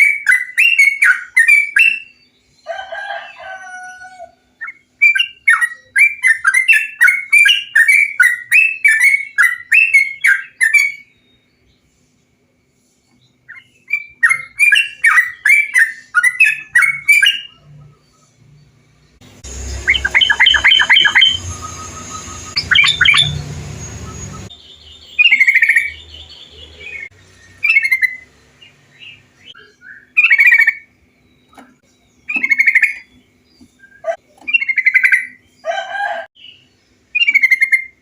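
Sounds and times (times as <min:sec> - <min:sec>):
bird singing chattering notes: 0:12.6 - 0:35.7, 0:36.4 - 0:38.0.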